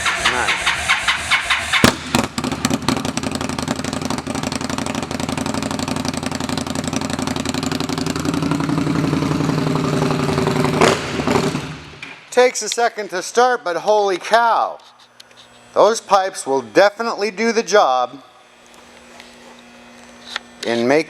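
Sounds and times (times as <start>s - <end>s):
motorcycle engine idling: 0.0s - 11.8s.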